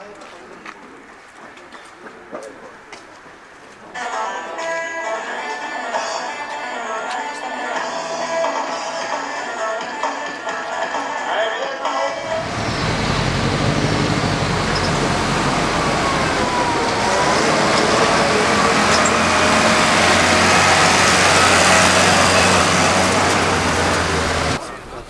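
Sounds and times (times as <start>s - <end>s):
truck engine running: 12.1s - 24.6s.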